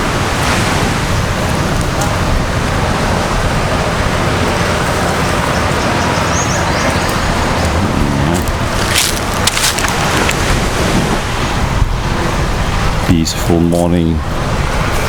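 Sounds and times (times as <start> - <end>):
surf: 0.0 - 15.0
wind rumbling on microphone: 0.0 - 15.0
sharp crackles: 3.8 - 11.6.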